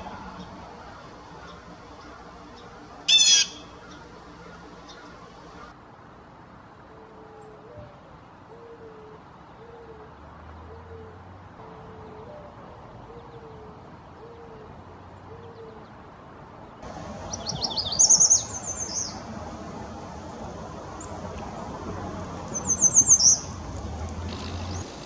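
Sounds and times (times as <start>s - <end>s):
bird low hooting calls: 0.0s - 5.7s.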